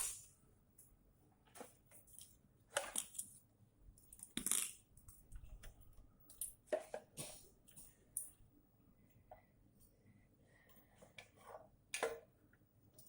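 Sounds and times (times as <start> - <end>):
handling rustles and scrapes: 1.4 - 3.4, 6.5 - 8.0.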